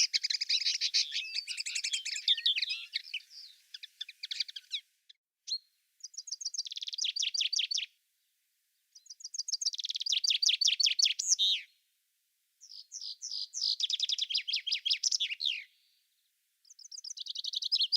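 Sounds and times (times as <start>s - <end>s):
songbird trilling: 0.0s - 4.9s, 5.5s - 7.9s, 9.0s - 11.7s, 12.6s - 15.7s, 16.7s - 17.9s.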